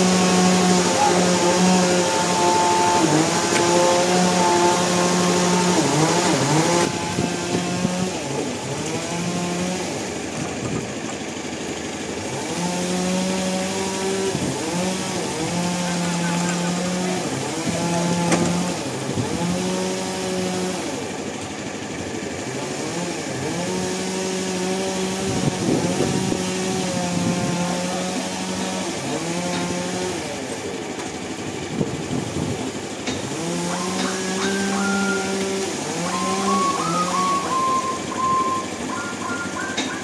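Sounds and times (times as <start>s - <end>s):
engine revving: 0.0s - 21.3s, 22.2s - 30.7s, 31.6s - 40.0s
beeping reversing alarm: 33.6s - 40.0s.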